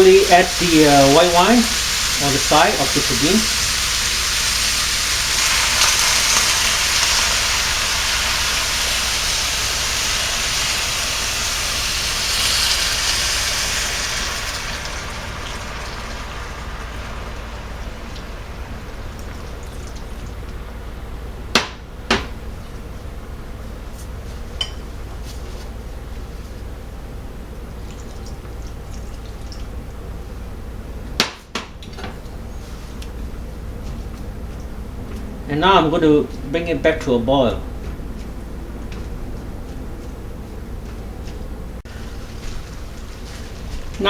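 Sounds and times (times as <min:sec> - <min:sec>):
wine sizzling in hot pot: 0:00.0 - 0:20.8, 0:41.8 - 0:44.0.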